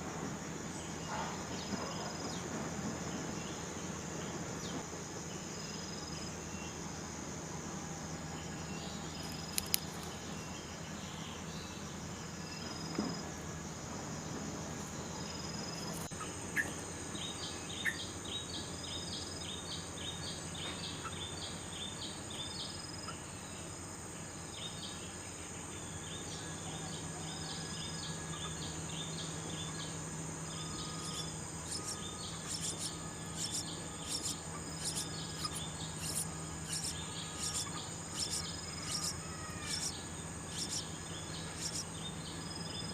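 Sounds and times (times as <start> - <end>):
crickets droning: 0.0 - 42.9
sharp clicks: 9.5 - 10.1
small bird chirping: 15.2 - 23.2, 26.2 - 42.9.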